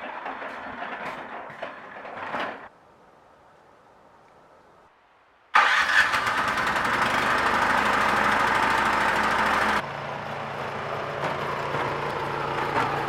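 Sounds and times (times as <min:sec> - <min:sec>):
engine starting and running: 0:00.0 - 0:02.7, 0:05.6 - 0:13.0.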